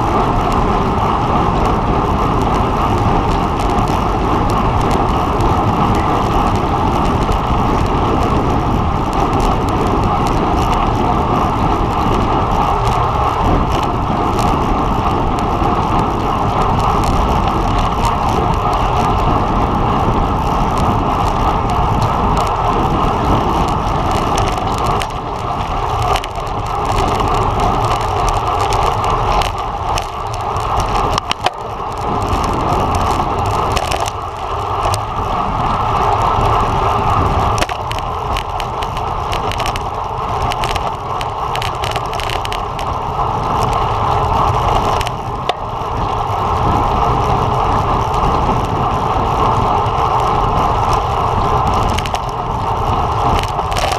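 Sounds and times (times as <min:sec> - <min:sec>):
bicycle road noise: 0:00.0 - 0:53.9
wind noise: 0:00.0 - 0:53.9.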